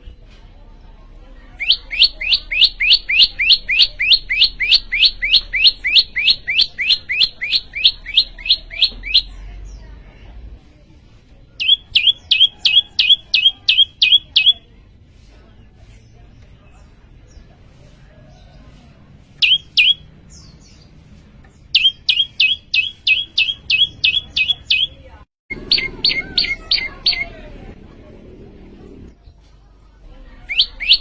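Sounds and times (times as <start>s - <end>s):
songbird repeating rising notes: 1.6s - 9.3s, 11.6s - 14.6s, 19.4s - 20.0s, 21.7s - 27.3s.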